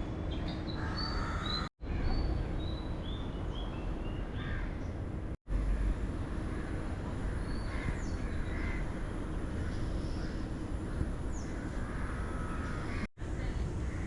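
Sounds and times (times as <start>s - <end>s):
birds calling: 0.0s - 2.3s, 5.6s - 14.0s
outdoor background hiss: 0.0s - 14.0s
crows cawing: 0.8s - 1.7s, 7.7s - 8.9s, 9.6s - 14.0s.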